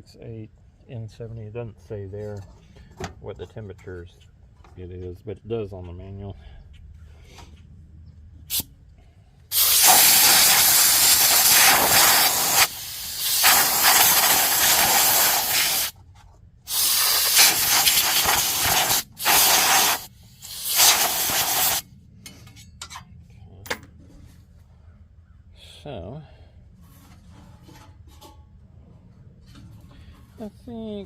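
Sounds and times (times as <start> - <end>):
compressed air blow gun hissing: 9.5 - 15.9, 16.7 - 21.8.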